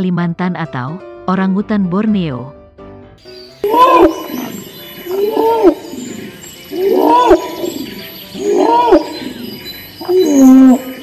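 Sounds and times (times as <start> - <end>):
orangutan calling: 3.6 - 11.0.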